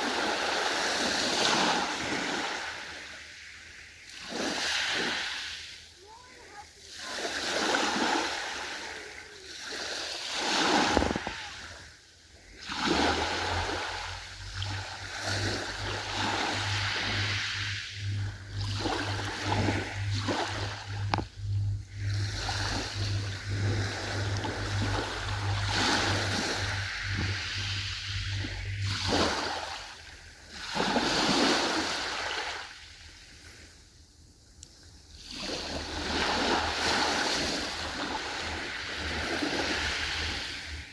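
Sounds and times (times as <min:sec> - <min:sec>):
ocean waves washing: 0:00.0 - 0:33.8, 0:35.1 - 0:40.9
steady low hum: 0:10.6 - 0:40.9.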